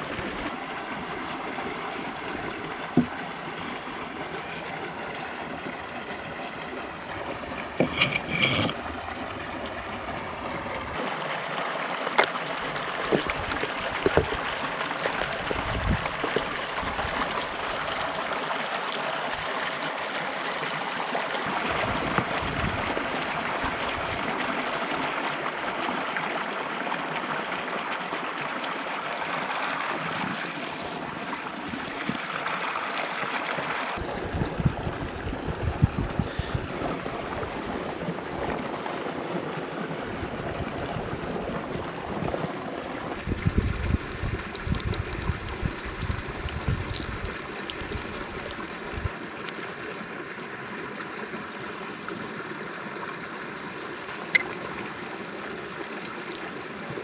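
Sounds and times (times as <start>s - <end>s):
stream rushing: 0.0s - 34.2s, 36.5s - 57.0s
knocks and clinks: 7.3s - 8.8s.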